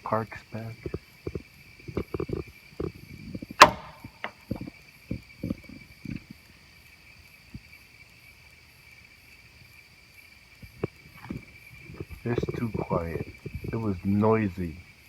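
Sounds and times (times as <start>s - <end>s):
sharp crack: 0.0s - 6.3s
night insects chirping: 0.0s - 15.0s
short knocks and thumps: 0.8s - 6.4s, 10.6s - 14.1s.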